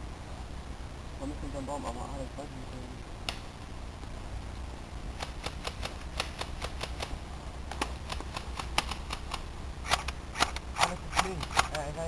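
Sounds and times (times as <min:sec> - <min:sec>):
airsoft guns firing: 0:05.2 - 0:11.9.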